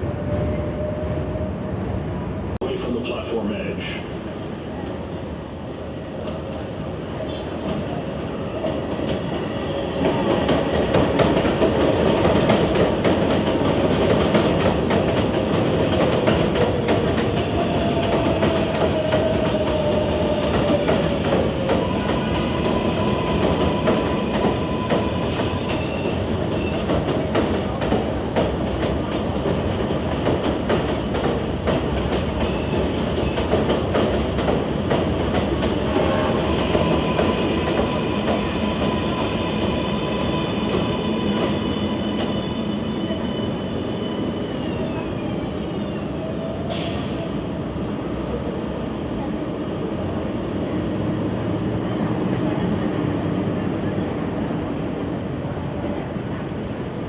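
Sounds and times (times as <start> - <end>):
train wheels rumbling and clacking: 6.2 - 50.1
faint wheel squeal: 41.8 - 49.9, 53.9 - 57.0.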